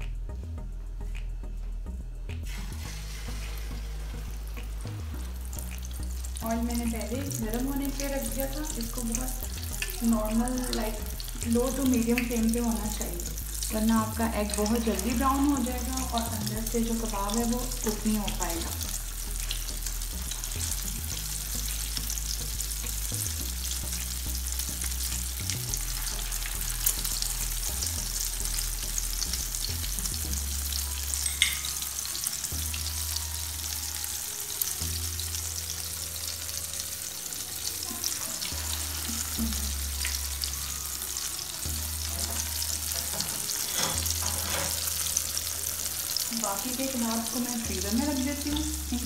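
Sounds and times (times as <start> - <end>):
food sizzling in hot oil: 2.4 - 49.0.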